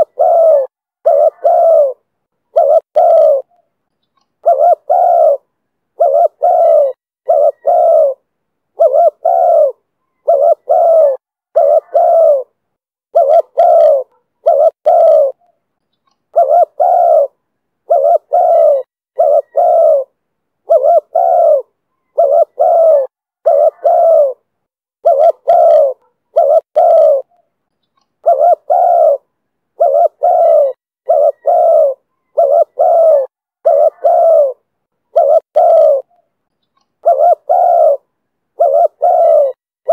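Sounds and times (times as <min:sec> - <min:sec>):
dove cooing: 0:00.0 - 0:03.6, 0:04.4 - 0:15.6, 0:16.3 - 0:27.4, 0:28.2 - 0:36.2, 0:37.0 - 0:39.9.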